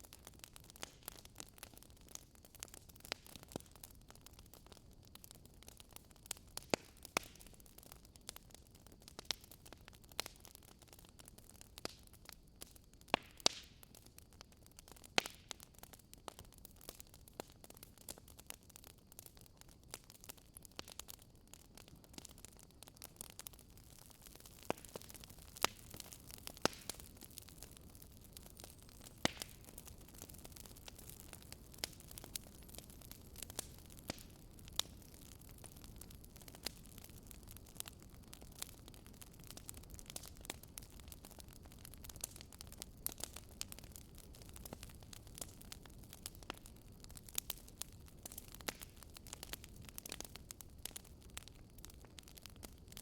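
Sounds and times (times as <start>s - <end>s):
campfire wood crackling and popping: 0.0s - 53.0s
soft steady fire hiss: 0.0s - 53.0s.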